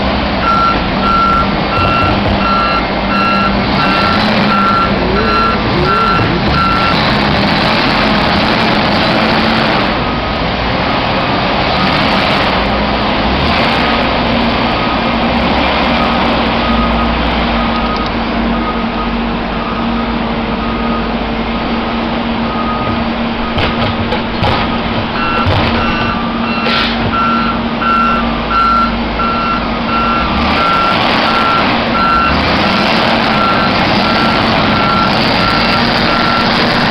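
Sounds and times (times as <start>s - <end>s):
heavy vehicle engine running: 0.0s - 36.9s
reversing alarm beeping: 0.4s - 8.3s, 15.9s - 21.1s, 22.5s - 23.6s, 24.6s - 36.8s.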